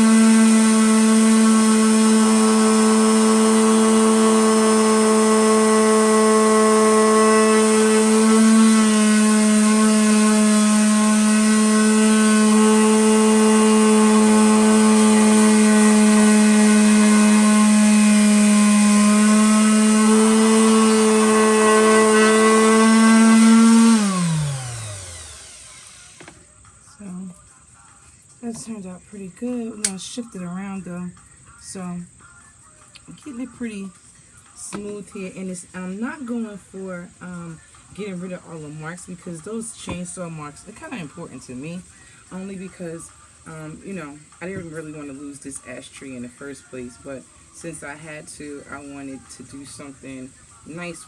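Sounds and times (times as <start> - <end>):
electric power sander running: 0.0 - 26.5.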